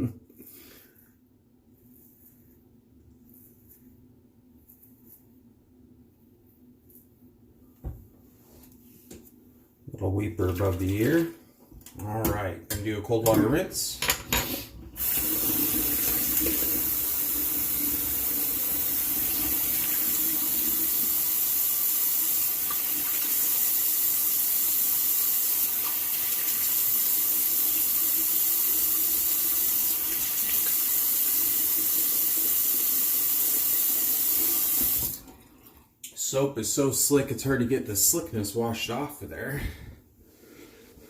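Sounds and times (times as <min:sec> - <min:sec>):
sink tap running water: 0:12.3 - 0:35.8.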